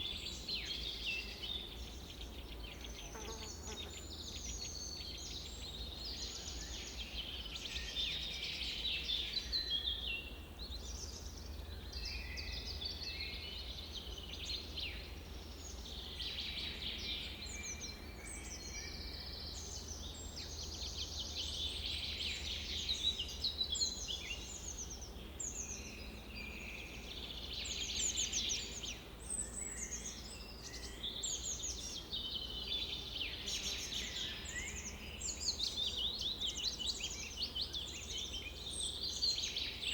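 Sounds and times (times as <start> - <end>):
birds chirping and trilling: 10.7 - 39.9.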